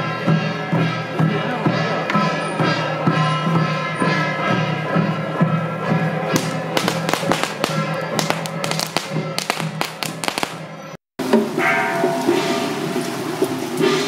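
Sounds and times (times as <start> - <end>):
music with held notes: 0.0 - 10.5
firecrackers cracking: 6.4 - 10.9.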